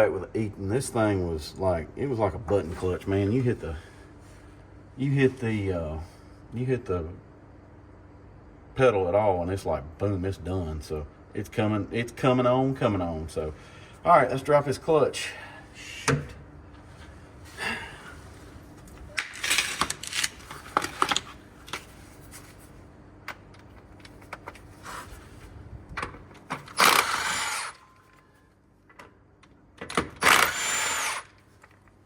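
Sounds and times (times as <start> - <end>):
power wrench running: 26.6 - 28.0, 30.2 - 31.4.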